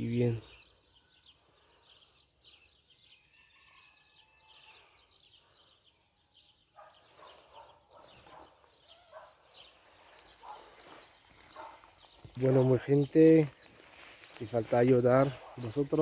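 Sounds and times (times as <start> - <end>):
faint bird chirps: 0.0 - 14.5.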